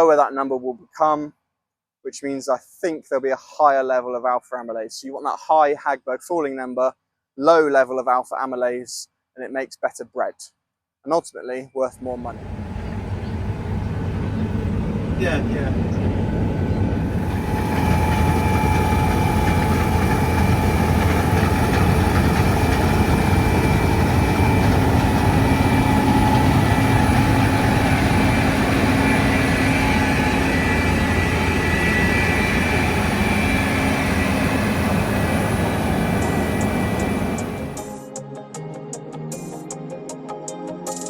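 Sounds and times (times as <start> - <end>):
faint steady whine: 12.0 - 37.8
deep engine drone: 12.0 - 37.9.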